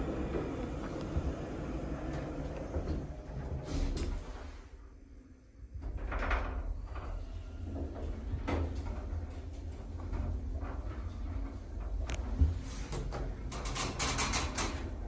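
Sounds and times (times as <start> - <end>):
lift low hum: 0.0 - 4.4.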